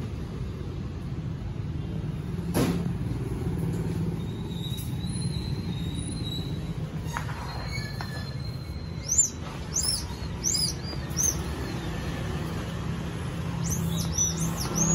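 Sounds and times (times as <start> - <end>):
small birds chirping: 7.6 - 14.9.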